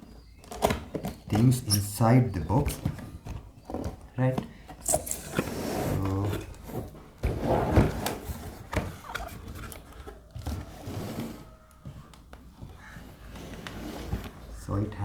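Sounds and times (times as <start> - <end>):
cardboard box rustling: 0.7 - 11.6.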